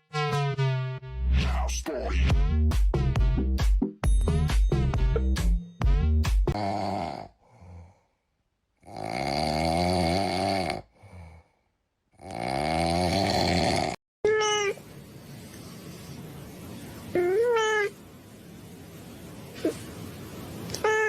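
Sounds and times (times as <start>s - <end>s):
cat meowing: 14.2s - 14.8s, 17.1s - 18.0s, 20.7s - 21.0s
cat wailing: 14.3s - 14.9s, 17.1s - 18.0s, 20.7s - 21.0s.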